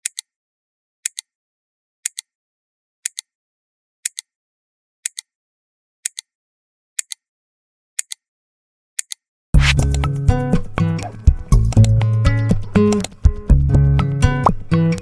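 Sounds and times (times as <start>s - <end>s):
clock ticking: 9.6s - 13.5s.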